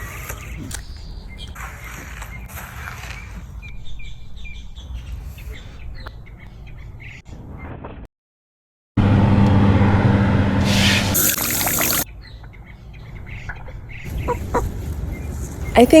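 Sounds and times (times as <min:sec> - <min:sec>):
chickens clucking: 0:13.2 - 0:16.0.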